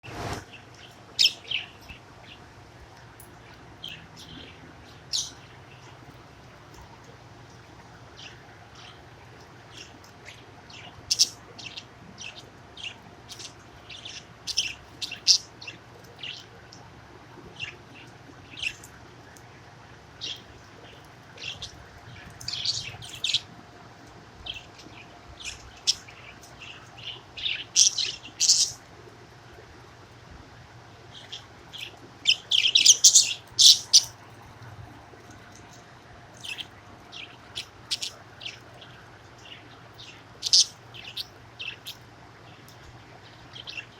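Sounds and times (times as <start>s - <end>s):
budgerigar chirping: 32.3s - 34.1s, 40.4s - 42.0s.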